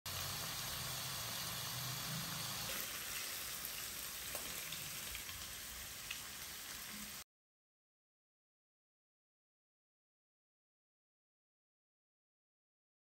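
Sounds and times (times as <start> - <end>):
chicken frying in oil: 0.1 - 7.2.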